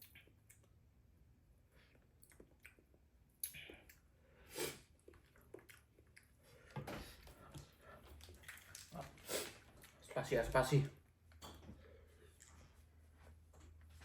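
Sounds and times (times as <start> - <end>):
person chewing noodles: 1.7 - 10.1, 12.0 - 13.1.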